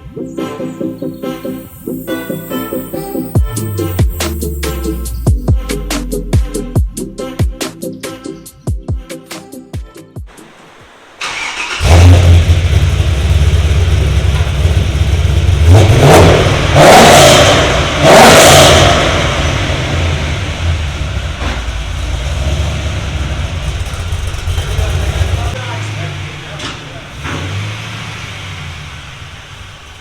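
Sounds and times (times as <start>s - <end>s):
engine idling: 10.4s - 16.7s, 19.1s - 30.0s
engine cranking and firing: 11.2s - 30.0s
engine revving: 11.2s - 30.0s.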